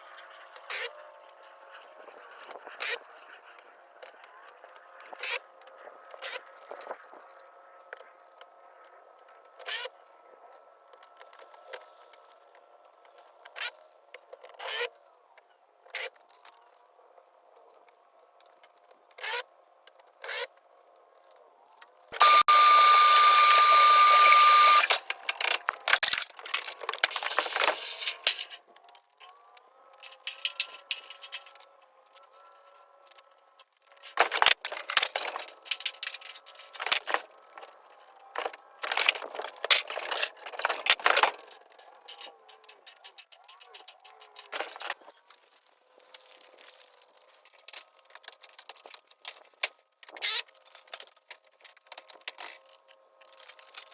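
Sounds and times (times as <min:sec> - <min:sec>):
power tool running: 0:22.2 - 0:26.0.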